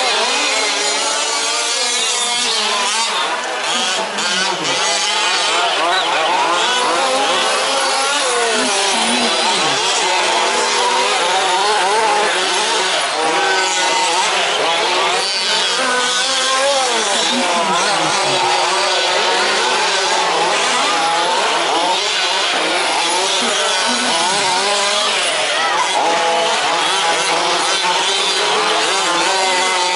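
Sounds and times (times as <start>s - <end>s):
small two-stroke engines revving: 0.0s - 29.9s.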